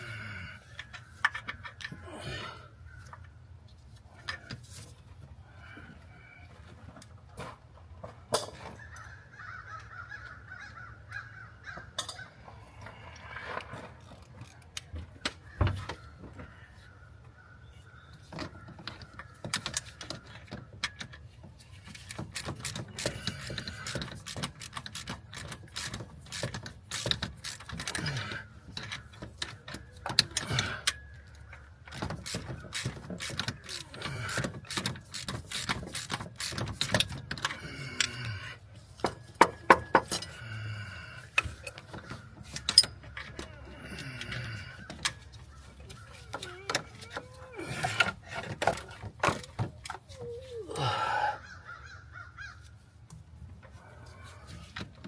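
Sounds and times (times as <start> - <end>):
hand tools clinking on metal: 39.0 - 51.2
bird calling: 50.1 - 52.8.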